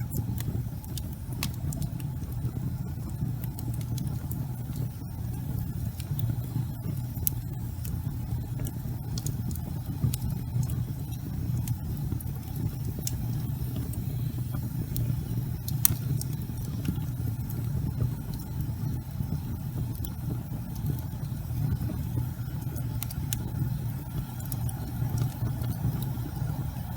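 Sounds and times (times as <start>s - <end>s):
fire crackles and pops: 0.0s - 26.9s
fire flames roaring: 0.0s - 26.9s.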